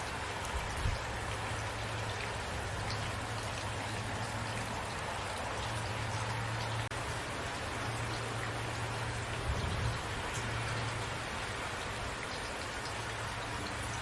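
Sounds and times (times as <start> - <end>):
rain hissing: 0.0 - 14.0.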